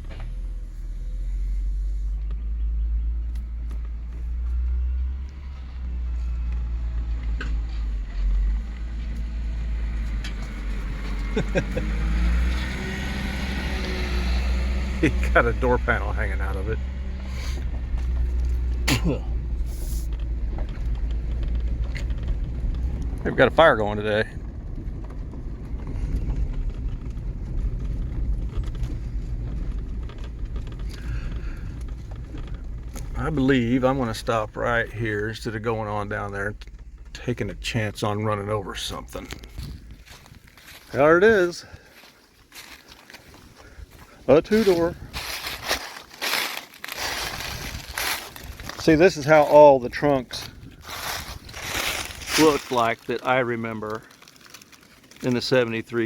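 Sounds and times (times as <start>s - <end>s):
creaks: 0.0s - 56.0s
vehicle engine rumbling: 0.0s - 56.0s
knocks and rattles: 16.8s - 38.2s.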